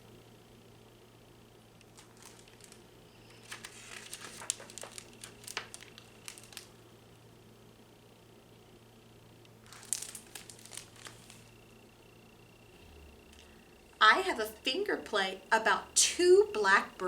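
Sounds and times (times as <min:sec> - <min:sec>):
book crinkling and rustling: 0:01.8 - 0:06.8, 0:09.6 - 0:11.6.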